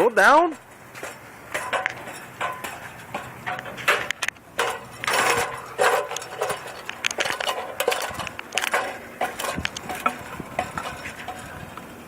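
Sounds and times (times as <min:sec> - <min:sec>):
tools and metal parts clicking: 0:01.0 - 0:11.6.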